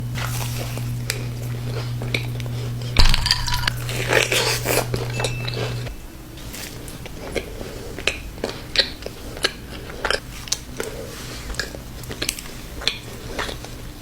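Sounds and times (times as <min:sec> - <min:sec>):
steady low hum: 0:00.0 - 0:14.0
chewing cookie: 0:00.2 - 0:14.0
small clinks: 0:03.0 - 0:06.1.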